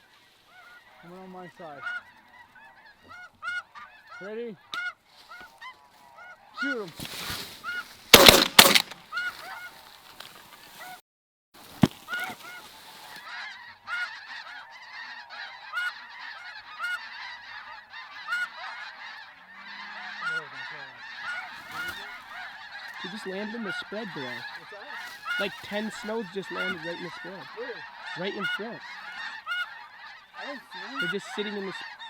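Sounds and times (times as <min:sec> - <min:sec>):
snow geese honking: 0:00.0 - 0:10.0, 0:12.0 - 0:32.0
shotgun shots: 0:08.2 - 0:09.0.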